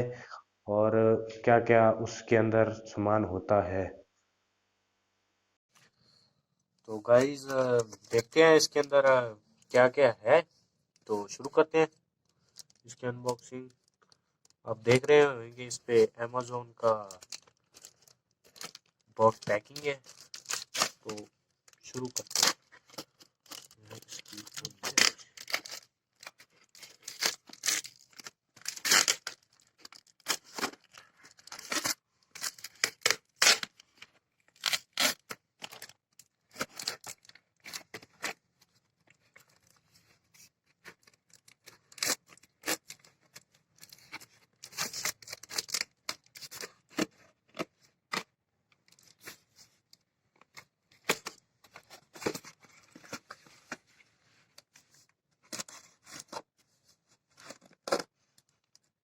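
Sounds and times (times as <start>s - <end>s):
cardboard and tape ripping: 17.1s - 21.2s, 22.0s - 33.8s, 34.5s - 38.4s, 40.9s - 43.1s, 43.9s - 48.2s.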